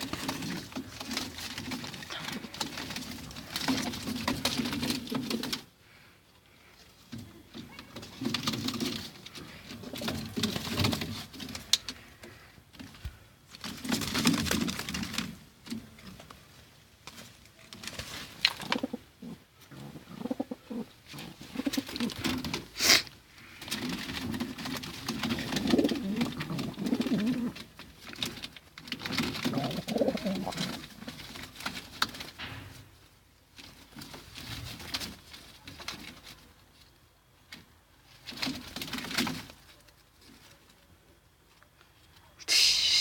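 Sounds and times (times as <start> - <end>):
pigeons cooing: 18.4 - 22.8, 23.6 - 27.9, 29.0 - 31.1.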